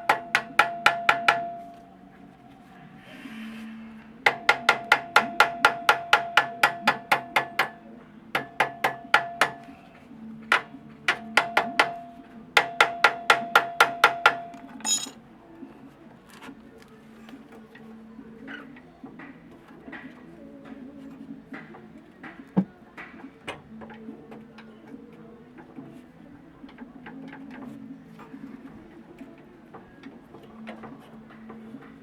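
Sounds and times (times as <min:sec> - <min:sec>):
hammer striking ringing metal: 0:12.6 - 0:15.2.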